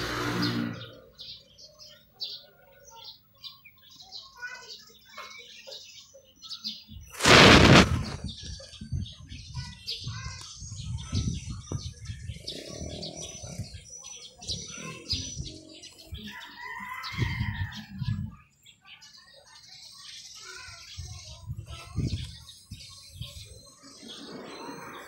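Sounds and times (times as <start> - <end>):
small birds chirping: 0.0 - 25.0
low thumps and rumbles: 7.2 - 8.3.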